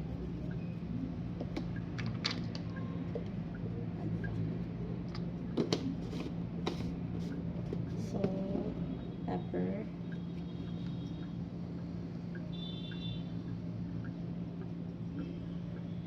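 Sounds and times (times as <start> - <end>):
steady low hum: 0.0 - 16.0
containers and utensils clicking: 1.4 - 2.8.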